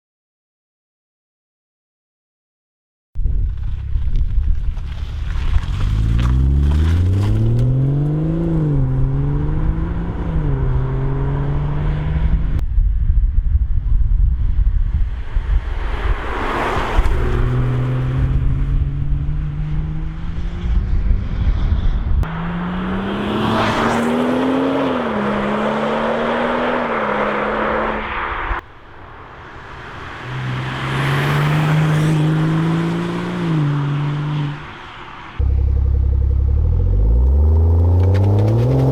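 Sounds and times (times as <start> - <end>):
car engine accelerating: 3.5 - 12.6, 15.6 - 28.6, 29.2 - 38.9
car passing by: 15.0 - 35.4.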